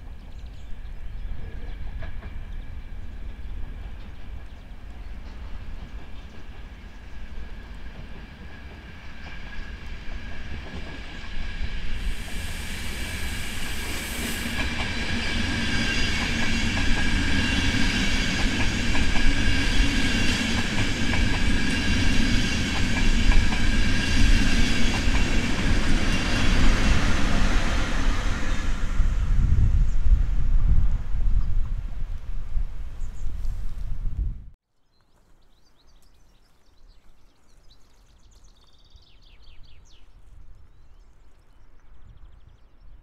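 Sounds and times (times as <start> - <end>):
train passing: 0.0 - 32.1.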